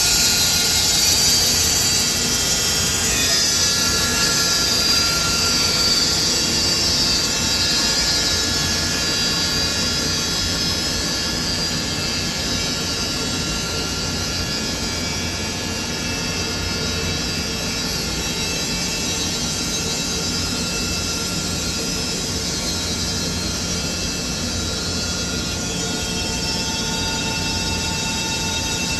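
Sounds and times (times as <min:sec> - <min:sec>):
sawmill running: 0:00.0 - 0:15.5.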